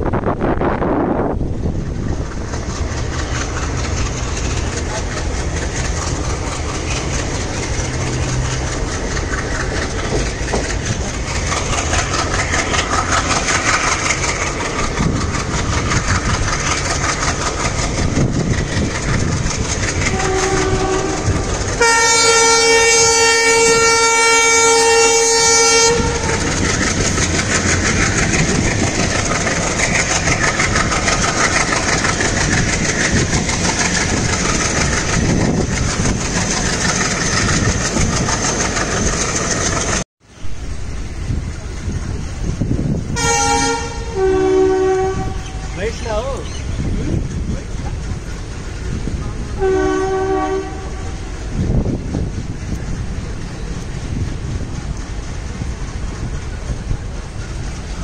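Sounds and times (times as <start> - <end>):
train rumble and wheel clatter: 0.0 - 58.0
locomotive horn blast: 20.1 - 26.5, 43.1 - 45.7, 49.3 - 51.3.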